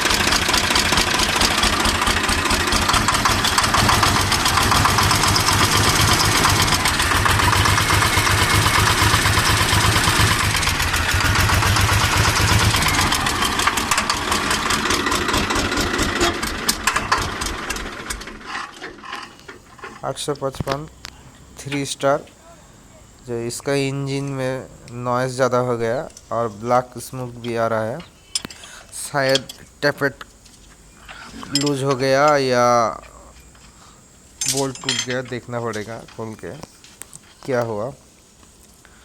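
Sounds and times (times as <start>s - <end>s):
diesel tractor engine running: 0.0s - 18.6s
heavy valve gear clatter: 31.1s - 33.7s, 34.4s - 36.6s.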